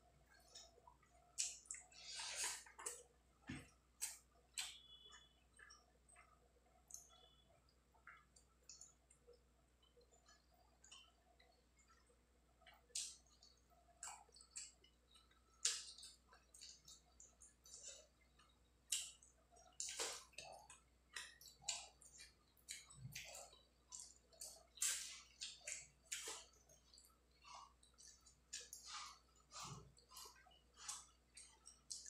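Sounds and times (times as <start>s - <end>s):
person chewing and lip smacking: 0.4s - 7.4s, 8.0s - 32.0s.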